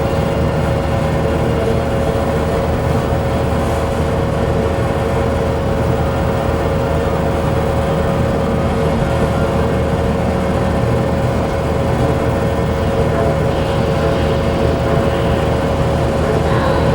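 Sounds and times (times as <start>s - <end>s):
constant hum: 0.0s - 16.9s
low rumble: 0.0s - 16.9s.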